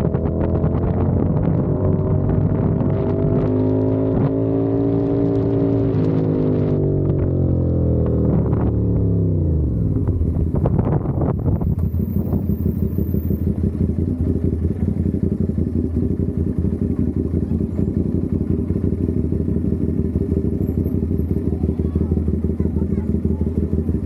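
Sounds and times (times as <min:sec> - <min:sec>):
motorcycle engine idling: 0:07.3 - 0:24.0.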